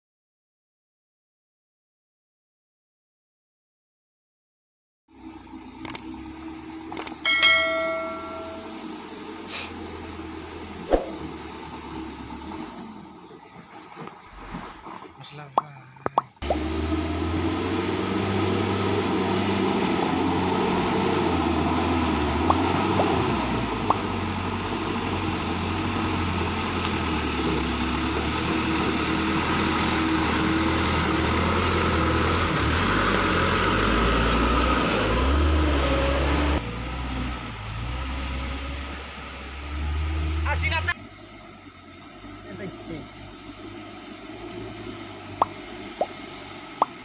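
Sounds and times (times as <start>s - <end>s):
truck engine droning: 5.1s - 47.0s.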